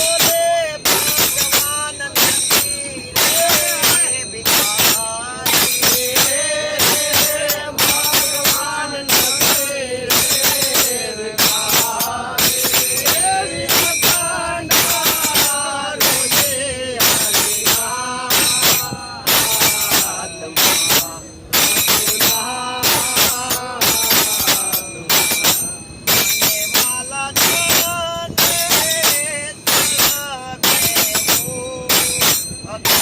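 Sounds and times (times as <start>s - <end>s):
person singing devotional song: 0.0s - 25.3s
sharp percussion strikes: 0.0s - 33.0s.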